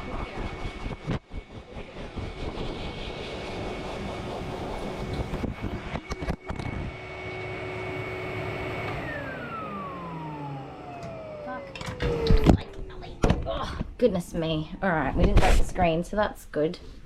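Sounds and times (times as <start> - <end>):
blow dryer whining: 0.0 - 13.9
motor winding down: 2.1 - 13.3.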